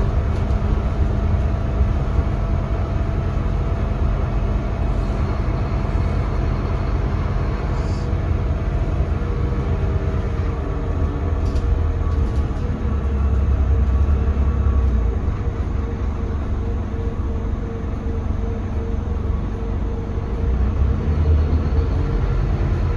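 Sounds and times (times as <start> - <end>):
bus diesel engine rumble: 0.0 - 22.9
road noise: 0.0 - 22.9.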